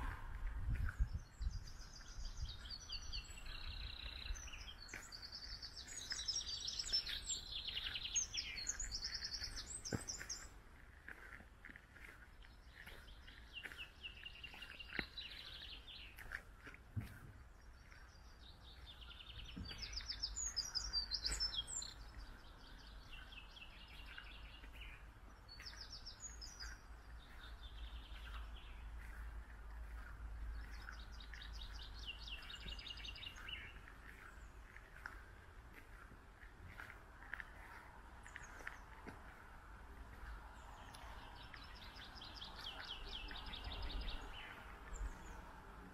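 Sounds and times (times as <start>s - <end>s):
steady low rumble: 0.0s - 13.6s
songbirds singing: 0.0s - 45.9s.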